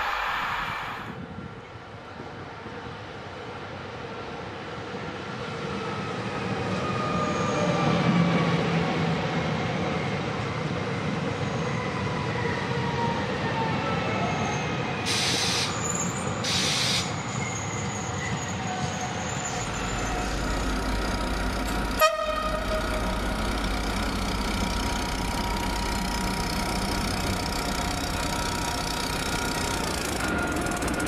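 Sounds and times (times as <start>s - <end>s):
train rolling past: 0.0s - 31.0s
wheel-on-rail tones sliding in pitch: 17.2s - 31.0s.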